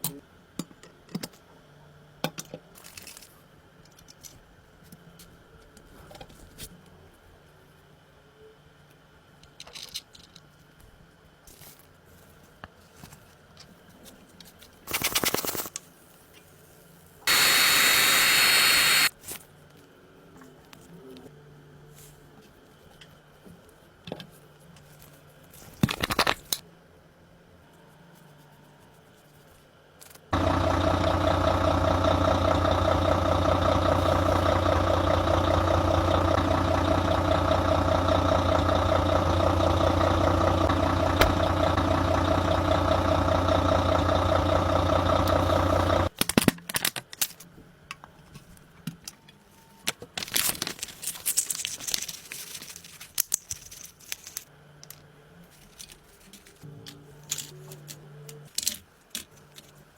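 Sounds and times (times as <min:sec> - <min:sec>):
machine running steadily: 0:17.3 - 0:19.1, 0:30.4 - 0:46.1.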